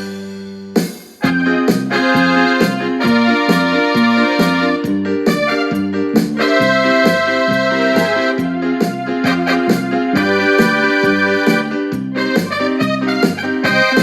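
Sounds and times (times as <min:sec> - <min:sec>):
bass line: 0:00.0 - 0:14.0
electric piano and organ chords: 0:00.0 - 0:14.0.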